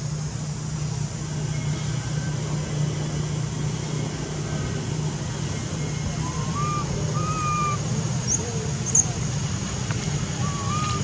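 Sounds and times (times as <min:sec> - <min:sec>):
low engine-like hum: 0:00.0 - 0:11.0
thin high calls: 0:05.4 - 0:11.0.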